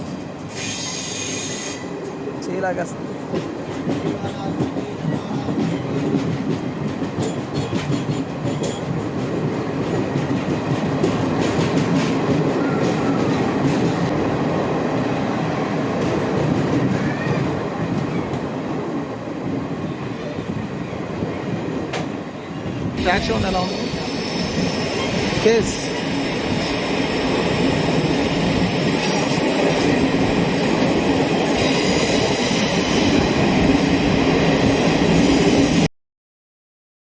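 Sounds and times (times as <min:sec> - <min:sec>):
train rumbling on the track: 0:00.0 - 0:35.9
wheels clacking over rails: 0:03.3 - 0:14.2.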